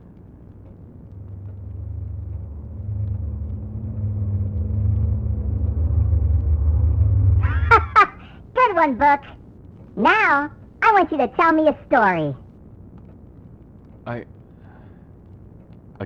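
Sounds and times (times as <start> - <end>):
deep low rumble: 0.0 - 9.9
faint steady hum: 0.0 - 16.0.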